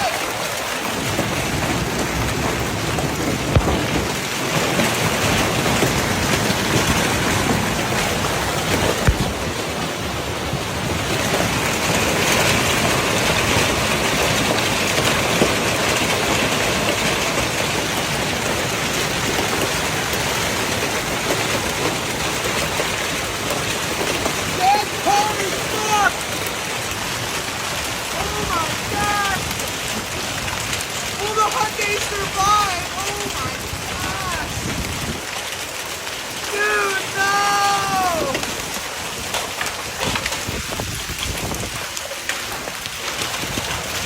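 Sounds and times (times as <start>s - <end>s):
heavy rain downpour: 0.0s - 44.0s.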